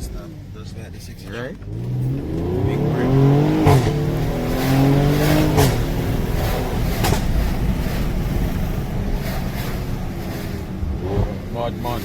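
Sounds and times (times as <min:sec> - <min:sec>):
car engine accelerating: 0:00.0 - 0:12.0
gear change: 0:00.0 - 0:12.0
road noise: 0:00.0 - 0:12.0.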